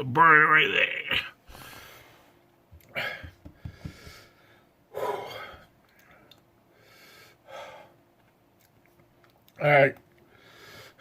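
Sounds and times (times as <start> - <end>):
man gasping and breathing hard: 2.8 - 5.7.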